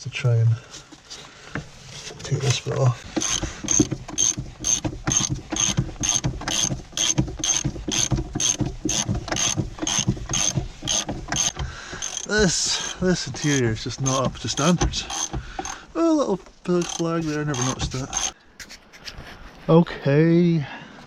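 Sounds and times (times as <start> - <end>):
socket ratchet clicking: 3.2 - 15.8, 16.8 - 18.4.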